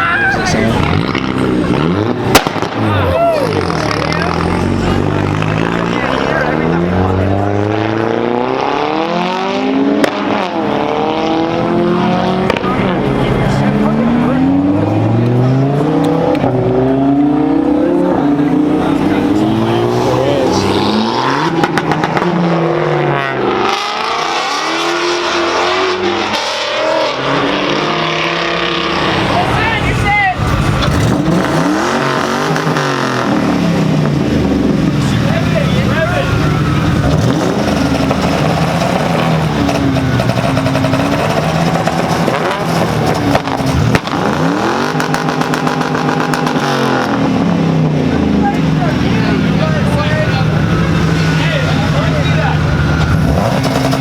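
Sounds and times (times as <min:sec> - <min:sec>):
car engine revving: 0:00.0 - 0:54.0
sharp crack: 0:02.3 - 0:03.0.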